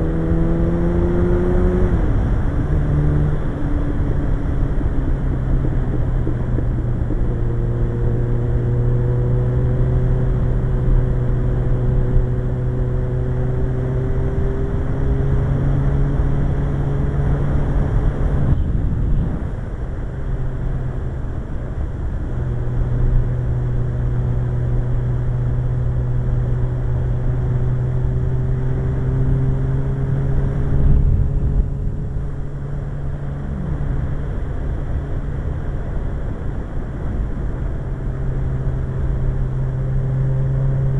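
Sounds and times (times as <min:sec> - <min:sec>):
motorcycle engine drone: 0:00.0 - 0:40.9.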